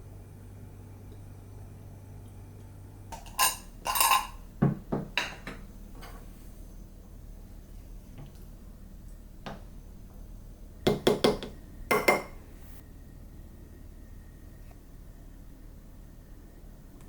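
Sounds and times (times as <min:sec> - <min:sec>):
kitchenware ringing clinks: 0:03.2 - 0:04.4
kitchenware tapping: 0:03.2 - 0:05.6, 0:10.9 - 0:12.4.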